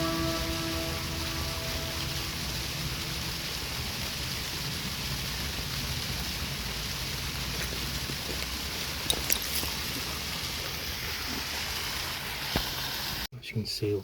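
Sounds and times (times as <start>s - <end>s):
background music: 0.0s - 4.7s
stream water rushing: 0.0s - 13.2s.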